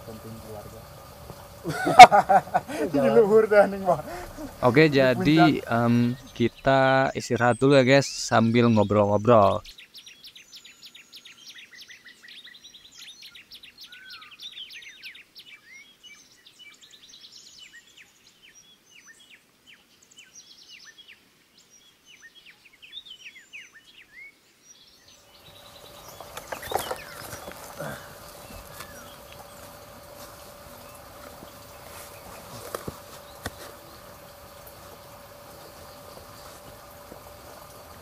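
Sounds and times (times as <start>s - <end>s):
steady hum: 0.0s - 7.2s, 25.2s - 38.0s
wild birds chirping: 0.0s - 38.0s.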